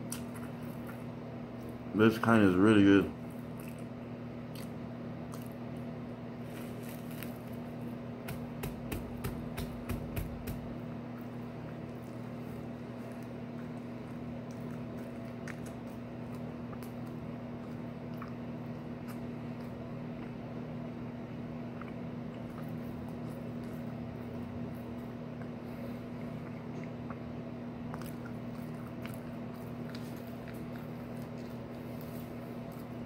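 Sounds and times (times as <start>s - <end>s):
steady low hum: 0.0s - 33.0s
person chewing with wet mouth clicks: 13.6s - 18.4s.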